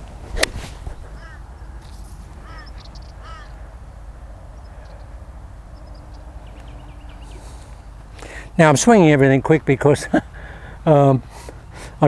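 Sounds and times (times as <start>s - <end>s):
golf club striking ball: 0.3s - 1.4s
bird calling: 1.1s - 1.4s, 2.4s - 3.6s.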